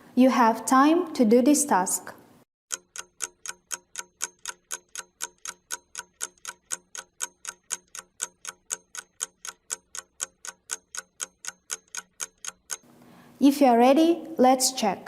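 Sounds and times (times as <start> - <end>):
clock ticking: 2.7 - 12.9.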